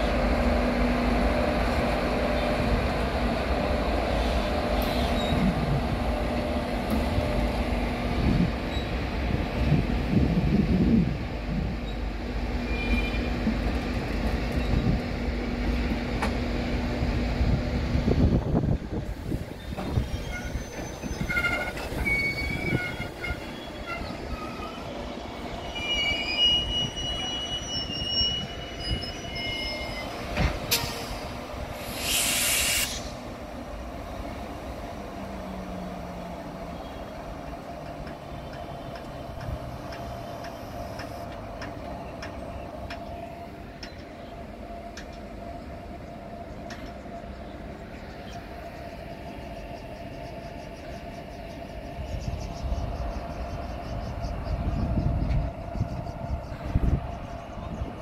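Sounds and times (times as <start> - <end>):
freight train rolling past: 0.0 - 58.0
wheels squealing: 19.5 - 33.2.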